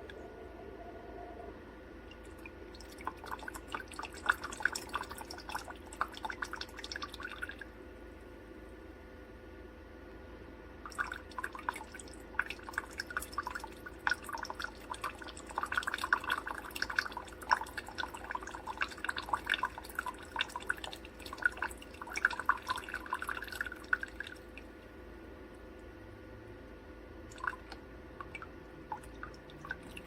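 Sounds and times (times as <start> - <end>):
faint steady hum: 0.0 - 30.0
coffee maker dripping water: 2.0 - 7.8, 10.9 - 24.9, 27.3 - 30.0.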